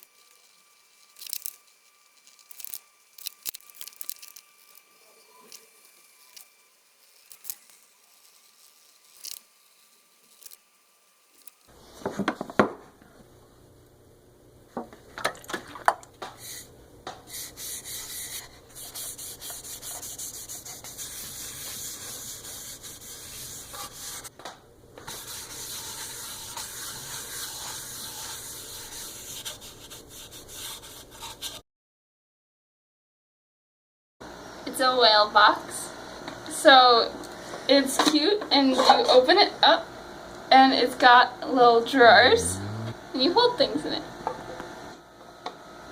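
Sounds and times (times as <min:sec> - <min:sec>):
wood being sanded: 0:00.0 - 0:11.7, 0:17.6 - 0:24.3, 0:25.1 - 0:31.6.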